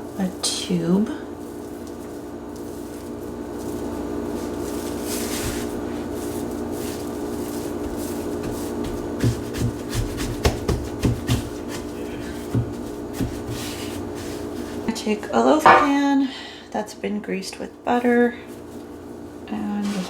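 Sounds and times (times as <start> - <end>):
dough rubbing and squishing: 0.0 - 15.1, 18.0 - 20.0.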